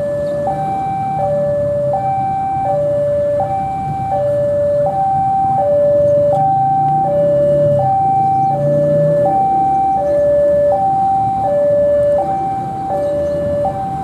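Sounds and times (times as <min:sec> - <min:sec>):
two-tone level crossing alarm: 0:00.0 - 0:14.0.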